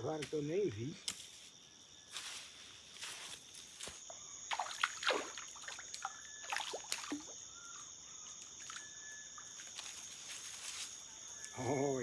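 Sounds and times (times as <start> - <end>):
night insects droning: 0.0 - 12.0
water splashing and dripping: 4.5 - 7.5, 8.2 - 10.0.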